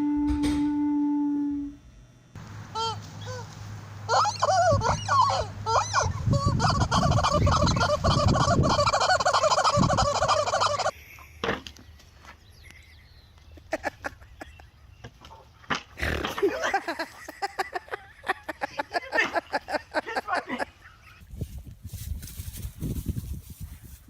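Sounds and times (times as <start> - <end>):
turkeys gobbling: 4.1 - 11.0.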